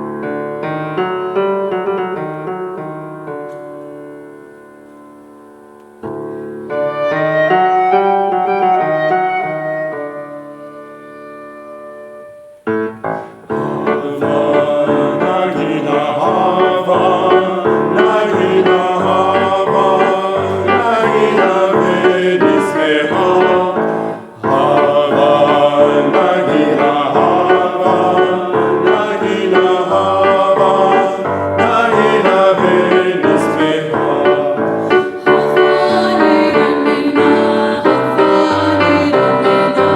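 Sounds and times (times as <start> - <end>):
piano accompaniment: 0.0 - 39.9
vocal ensemble singing: 13.1 - 39.9.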